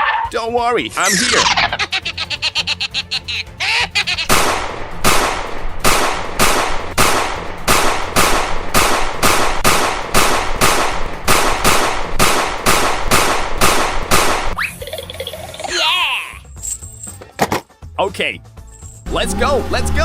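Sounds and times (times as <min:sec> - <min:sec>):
rapid sharp bangs with hiss: 0:04.3 - 0:14.6.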